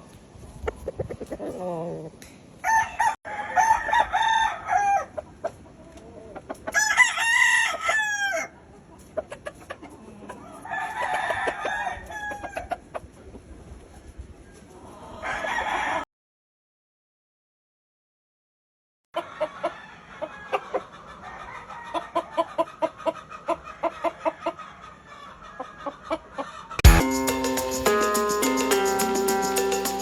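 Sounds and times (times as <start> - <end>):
rooster clucking: 0.7 - 13.1
roosters crowing: 2.6 - 5.2, 6.7 - 8.6, 10.4 - 12.7, 15.2 - 16.0.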